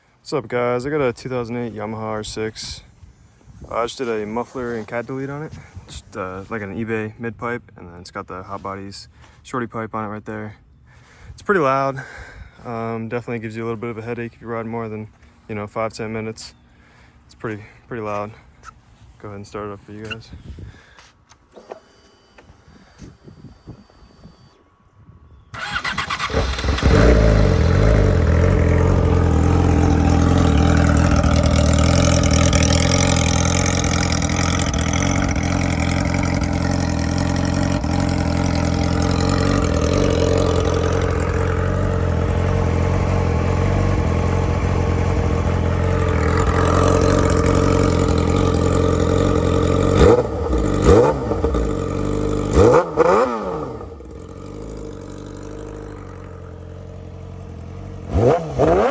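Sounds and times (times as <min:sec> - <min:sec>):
motorcycle engine starting and idling: 0:21.0 - 0:24.6, 0:25.4 - 0:58.9
throttle blips revving engine: 0:25.6 - 0:58.9.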